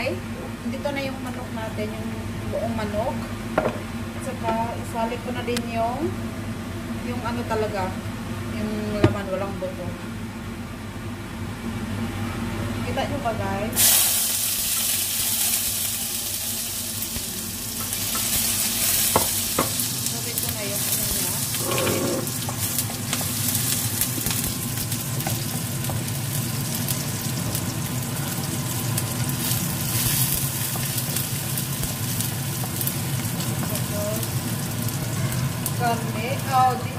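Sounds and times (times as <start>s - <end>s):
onion sizzling in oil: 13.7s - 36.9s.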